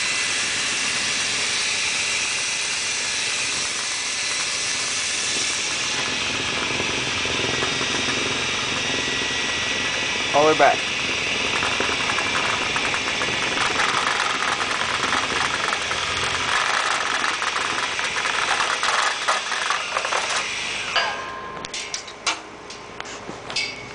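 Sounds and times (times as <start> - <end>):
vent cleaning equipment rattling: 5.8 - 20.5
light clinks: 23.5 - 23.9.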